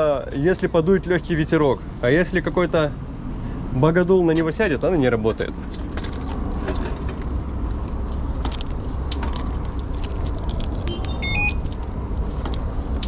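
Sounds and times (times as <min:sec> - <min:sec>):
low outdoor rumble: 0:00.0 - 0:13.0
rising electronic alarm beeps: 0:10.9 - 0:11.7.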